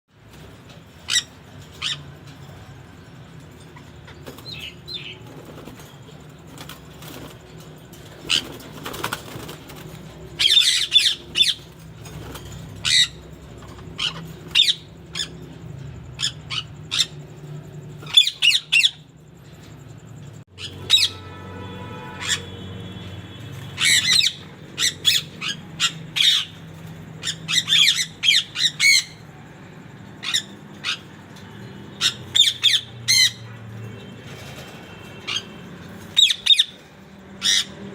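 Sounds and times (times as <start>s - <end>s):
parakeets squawking: 0.6s - 19.3s, 20.5s - 37.9s.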